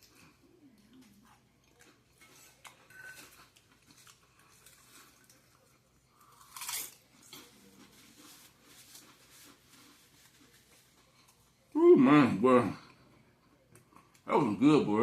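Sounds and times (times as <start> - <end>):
person chewing food: 0.0 - 11.7.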